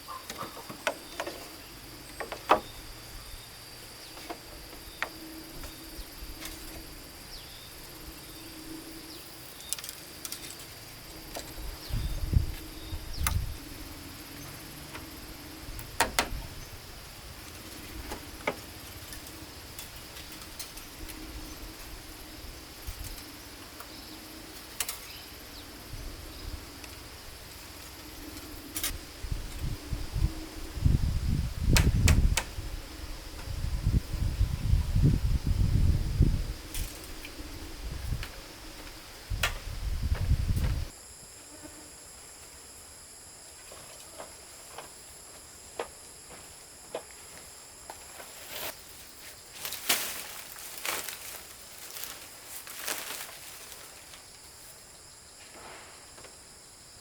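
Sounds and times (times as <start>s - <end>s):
high-pitched insect calls: 0.0s - 57.0s
sharp knocks and clicks: 2.1s - 2.7s, 15.9s - 16.4s.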